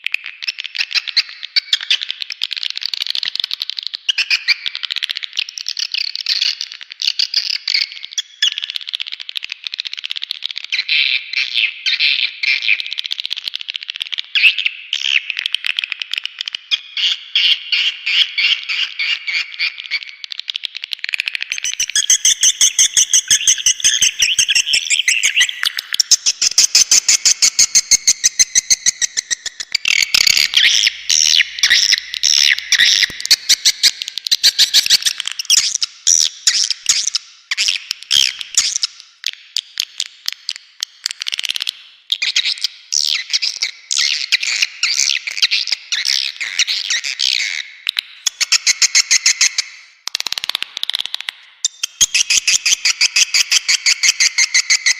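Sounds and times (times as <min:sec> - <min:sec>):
swiftlet chittering calls: 0:21.4 - 0:38.9.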